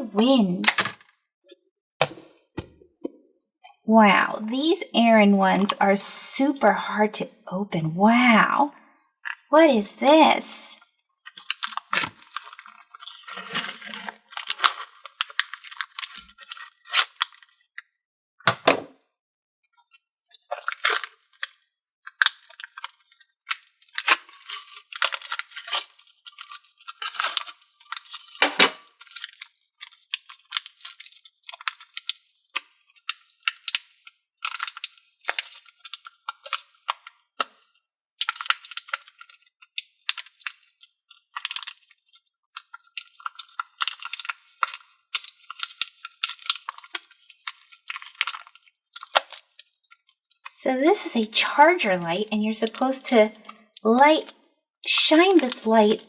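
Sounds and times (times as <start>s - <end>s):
plastic packaging crackling and tearing: 11.3s - 17.8s, 19.9s - 50.6s, 55.0s - 56.0s.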